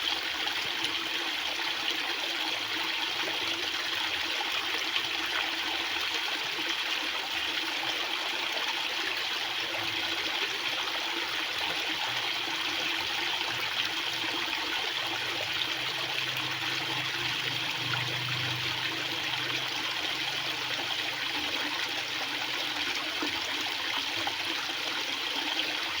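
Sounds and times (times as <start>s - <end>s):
water rushing: 11.5s - 26.0s.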